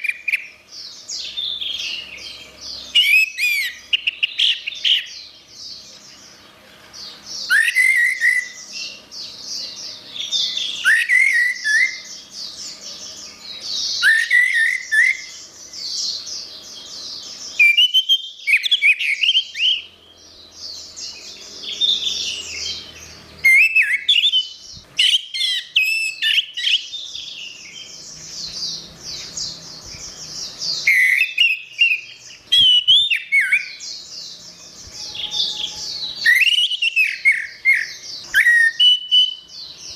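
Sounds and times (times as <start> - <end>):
thrush singing whistled phrases: 2.9 - 5.1, 7.4 - 8.9, 10.2 - 12.1, 13.9 - 15.4, 17.6 - 19.9, 23.4 - 27.9, 30.7 - 33.8, 34.8 - 39.5.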